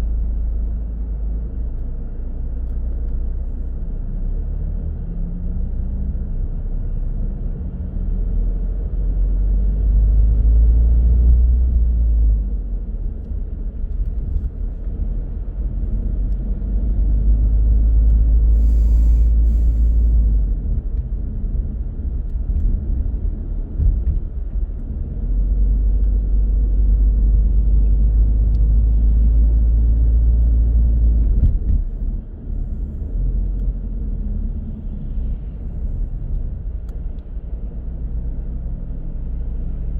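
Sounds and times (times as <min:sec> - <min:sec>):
car tyres and engine rumble: 0:00.0 - 0:39.9
brief hiss: 0:18.6 - 0:20.2.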